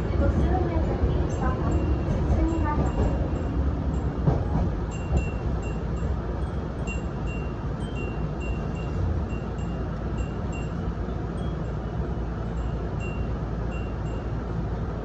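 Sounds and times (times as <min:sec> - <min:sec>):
train running rumble: 0:00.0 - 0:15.0
wind chimes tinkling: 0:04.9 - 0:11.9.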